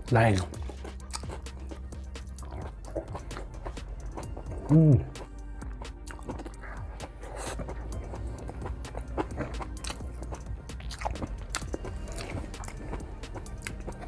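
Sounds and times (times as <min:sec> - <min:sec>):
close chewing of food: 0:00.0 - 0:14.0
soft background music: 0:00.0 - 0:14.0
fingers being licked: 0:00.9 - 0:14.0.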